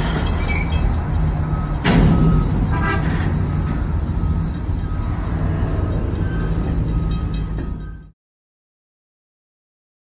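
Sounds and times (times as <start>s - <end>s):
freight train cars rumbling: 0.0s - 8.1s
brief high-pitched squeal: 0.2s - 0.8s
loud metal clank: 1.8s - 3.9s.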